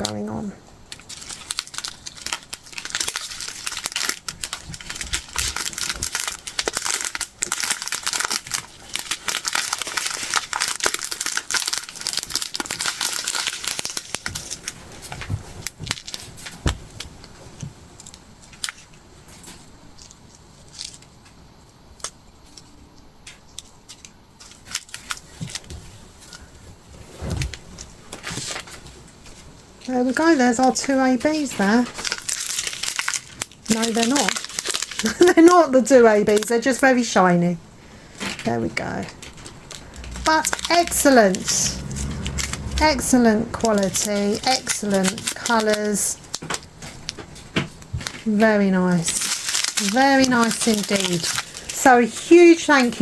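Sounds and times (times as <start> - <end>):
plastic bags crinkling: 0.9 - 21.1, 23.6 - 37.2, 37.8 - 53.0
small plastic pieces clicking: 48.9 - 51.9.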